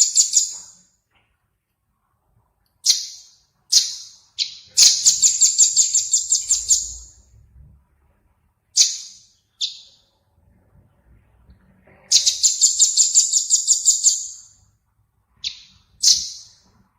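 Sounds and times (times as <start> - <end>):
songbird harsh rattling calls: 2.8 - 7.1, 12.1 - 14.5, 15.4 - 16.6.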